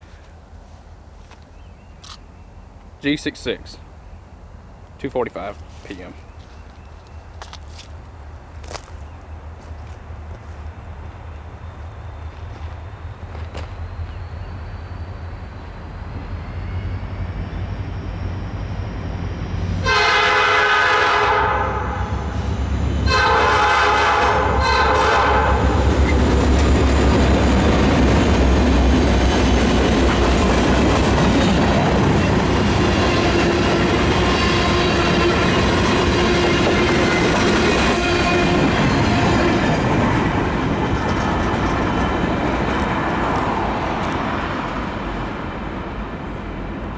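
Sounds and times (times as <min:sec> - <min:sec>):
diesel locomotive engine throb: 0:11.0 - 0:46.9
train horn blasts: 0:19.8 - 0:26.0, 0:32.7 - 0:39.9.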